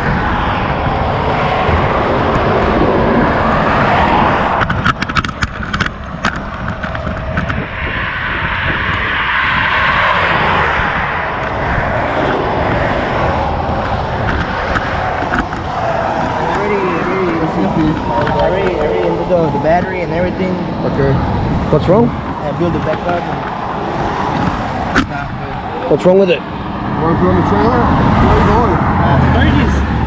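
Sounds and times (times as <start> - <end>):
vehicles passing at speed: 0.0 - 30.0
sharp clicks or knocks: 4.5 - 7.6.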